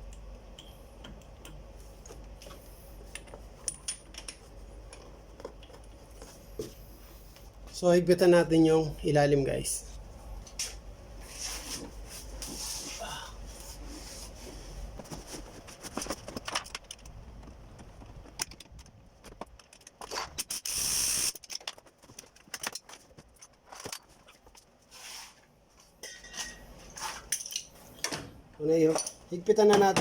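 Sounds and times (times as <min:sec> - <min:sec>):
ratchet wrench clicking: 0:20.4 - 0:21.4
hiss: 0:20.6 - 0:21.4.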